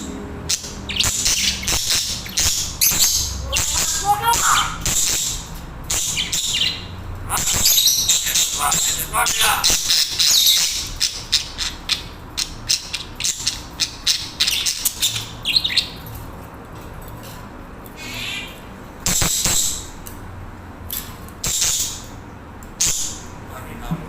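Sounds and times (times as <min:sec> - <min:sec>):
budgerigars chattering: 0:00.5 - 0:15.9
short warbled call: 0:03.4 - 0:04.8, 0:07.3 - 0:09.8.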